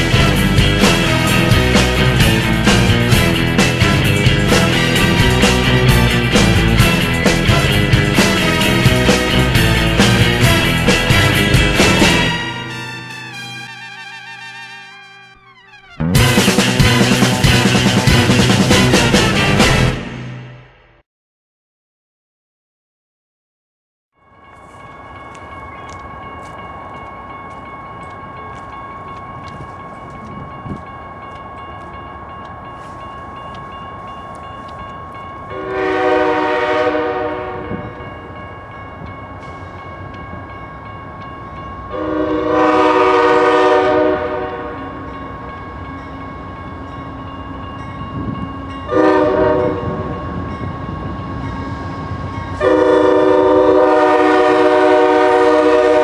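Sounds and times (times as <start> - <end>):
locomotive air horn blasts: 11.9 - 20.2, 35.5 - 37.9, 41.9 - 44.8, 48.9 - 50.1, 52.6 - 56.0.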